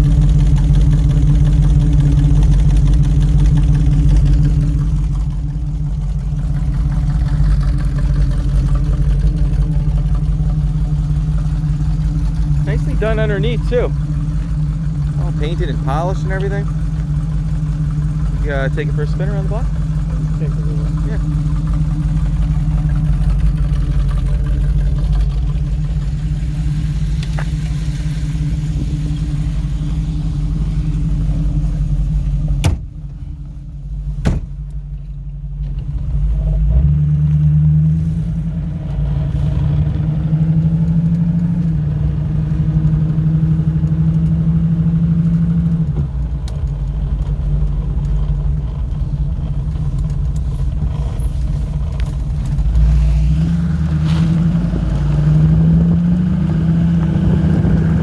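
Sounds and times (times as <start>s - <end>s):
car engine running: 0.0s - 58.0s
sharp knocks: 32.6s - 33.0s, 34.2s - 34.6s.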